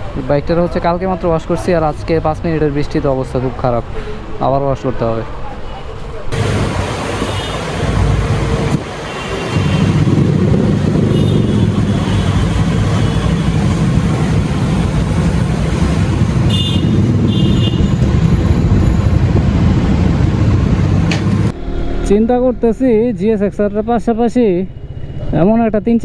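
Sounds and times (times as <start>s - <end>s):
road traffic: 5.8s - 22.0s
motorcycle engine running: 6.4s - 21.5s.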